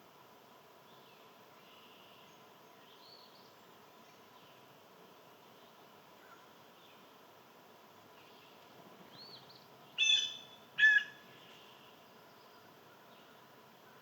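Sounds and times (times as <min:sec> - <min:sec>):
distant bird chirps: 0:09.2 - 0:11.8.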